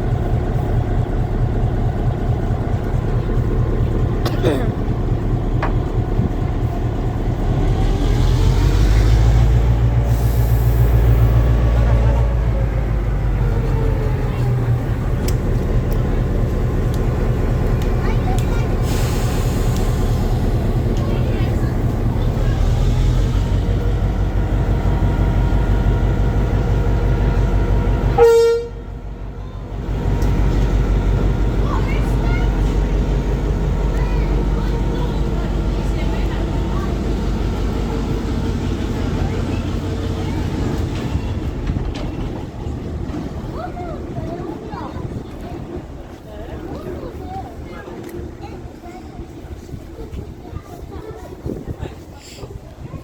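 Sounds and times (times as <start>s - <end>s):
vehicle engine rumbling: 0.0s - 53.0s
train horn toot: 28.1s - 29.0s.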